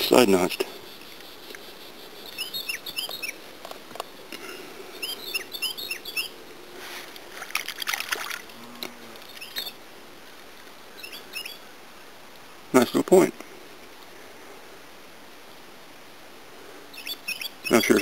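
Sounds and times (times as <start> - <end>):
songbird singing: 0.0 - 14.5, 16.6 - 18.0
water splash: 7.3 - 8.6.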